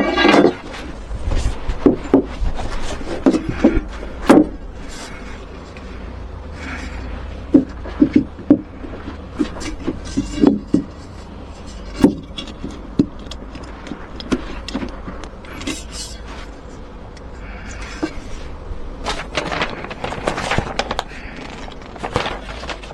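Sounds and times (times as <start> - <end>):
hard parts knocking and clunking: 0.0 - 0.9, 1.7 - 5.9, 6.5 - 18.4
steady low hum: 0.0 - 22.9.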